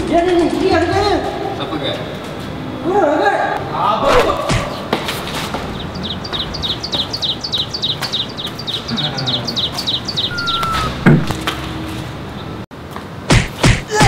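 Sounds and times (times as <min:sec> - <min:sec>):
bird chirping: 0:05.7 - 0:11.7.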